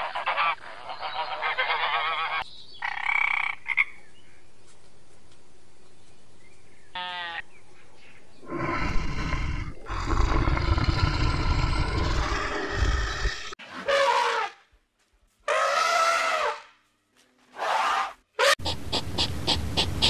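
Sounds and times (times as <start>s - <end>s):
bear growling: 8.4s - 13.6s.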